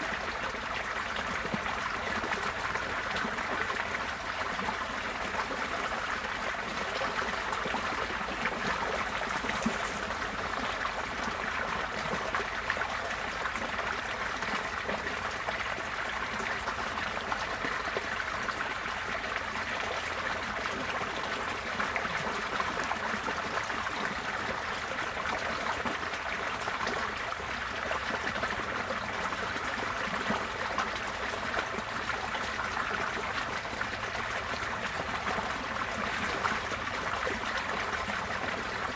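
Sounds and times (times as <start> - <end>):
flowing water: 0.0 - 38.9.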